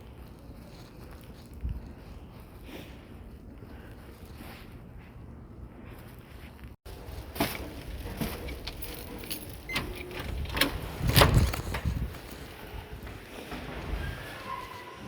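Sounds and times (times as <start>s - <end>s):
keys jangling: 8.1s - 12.5s.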